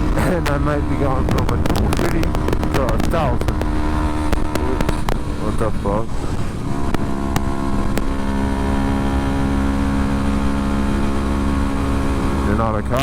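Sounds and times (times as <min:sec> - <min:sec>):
sharp clicks: 0:00.0 - 0:08.4
motorcycle engine running: 0:00.0 - 0:13.0.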